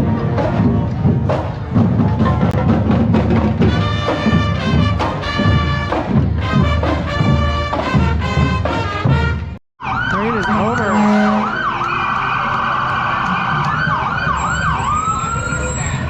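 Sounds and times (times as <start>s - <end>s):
marching drums: 0.0s - 9.6s
brass instruments holding chords: 3.6s - 9.6s, 10.6s - 11.7s.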